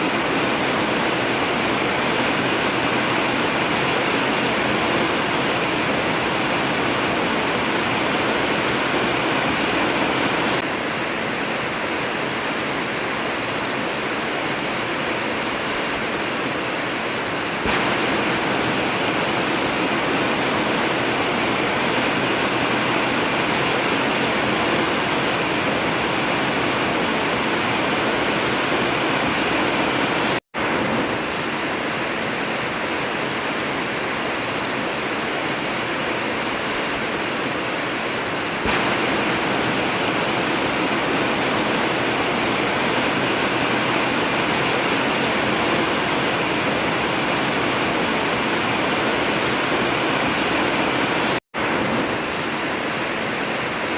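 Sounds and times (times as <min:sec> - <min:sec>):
heavy rain on a tin roof: 0:00.0 - 0:53.9.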